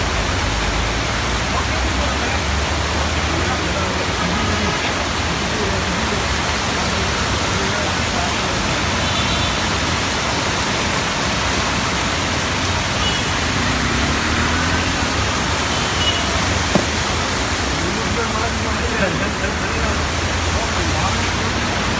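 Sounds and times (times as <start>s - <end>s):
heavy rain pouring: 0.0s - 21.9s
brief tap: 16.7s - 17.0s.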